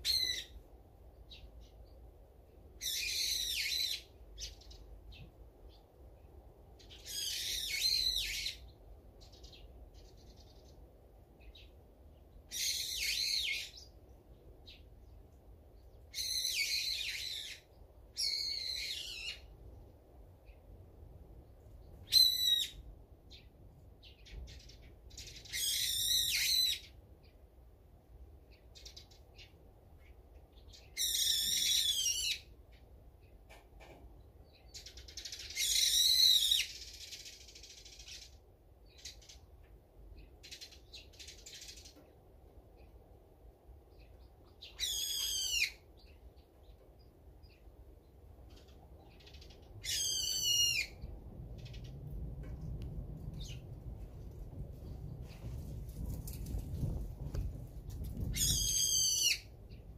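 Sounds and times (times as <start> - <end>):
songbird calling: 0.0 - 0.6, 2.8 - 5.8, 6.8 - 10.8, 12.5 - 14.0, 15.9 - 19.5, 22.0 - 27.0, 30.6 - 32.5, 34.5 - 39.5, 44.0 - 47.7, 48.4 - 52.1.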